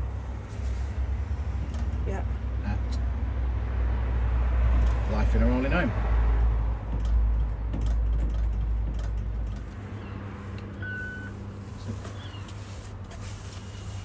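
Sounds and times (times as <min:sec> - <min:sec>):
short electronic beep: 0:10.8 - 0:11.4.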